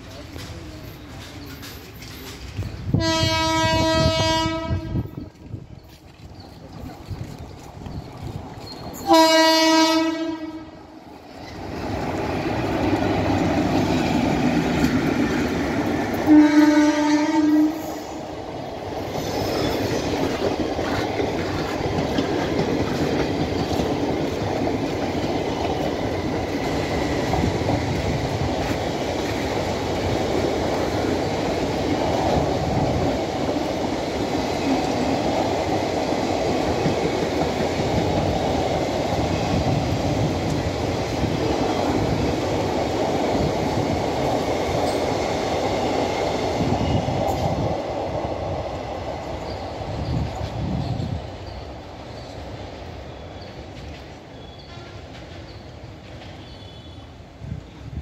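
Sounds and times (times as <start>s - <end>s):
train wheels clacking on rails: 0.0s - 58.0s
locomotive horn blast: 3.0s - 5.2s, 9.0s - 10.8s, 16.3s - 18.0s.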